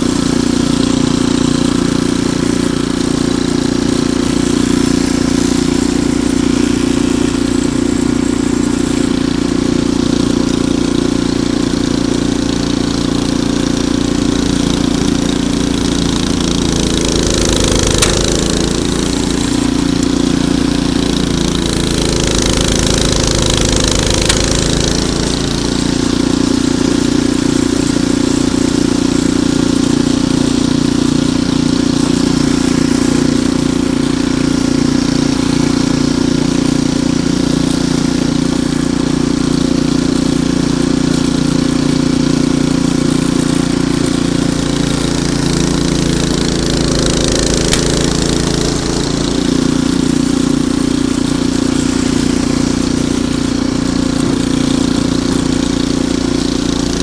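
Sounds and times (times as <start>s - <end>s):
snowblower engine running: 0.0s - 57.0s.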